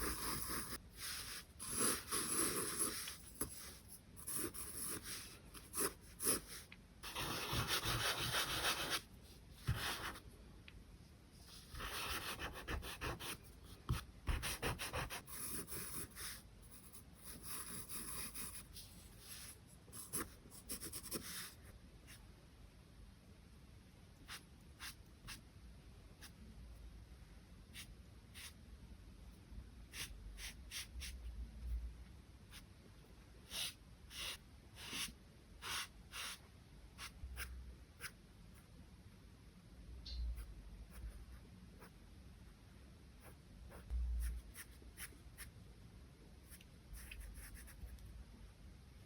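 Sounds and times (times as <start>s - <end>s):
charcoal scratching on paper: 0.0s - 10.2s.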